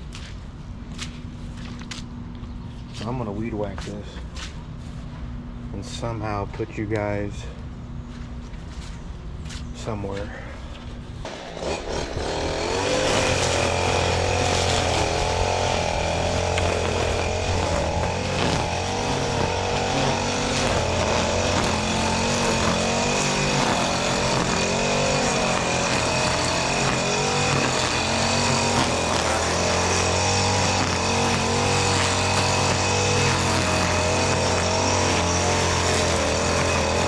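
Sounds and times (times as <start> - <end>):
string trimmer engine running: 11.3 - 37.0.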